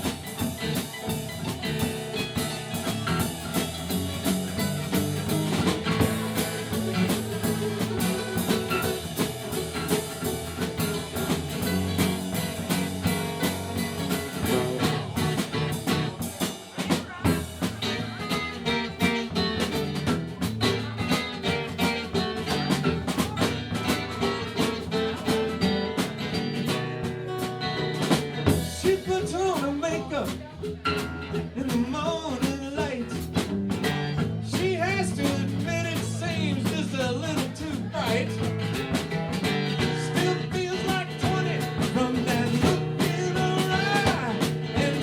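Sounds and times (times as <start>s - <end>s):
drum kit beat: 0.0s - 45.0s
electric guitar: 0.0s - 45.0s
live band playing: 0.0s - 45.0s.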